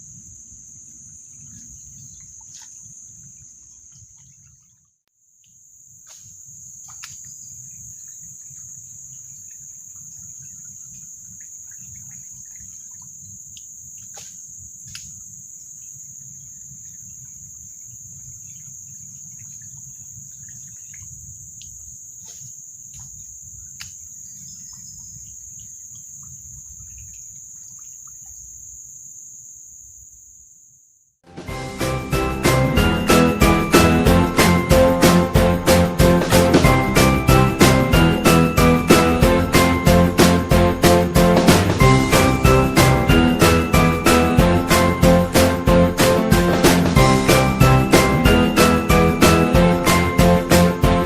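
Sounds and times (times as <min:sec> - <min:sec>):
insect chorus drone: 0:00.0 - 0:31.1.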